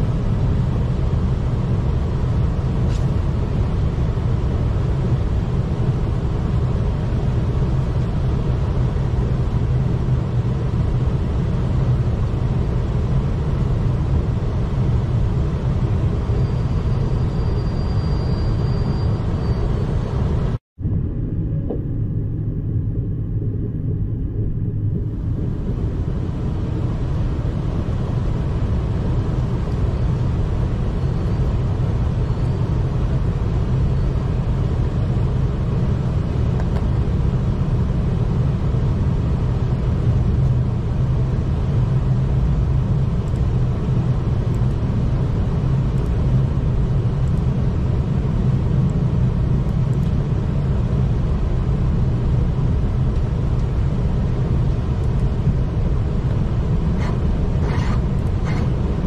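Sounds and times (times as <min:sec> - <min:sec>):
train rumbling inside carriage: 0:00.0 - 0:59.0
wheel and rail hiss: 0:02.8 - 0:03.2.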